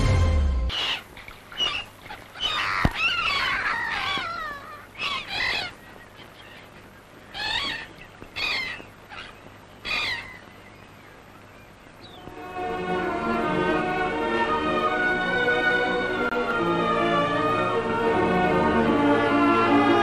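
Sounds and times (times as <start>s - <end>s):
birds chattering calls: 0.7s - 14.6s.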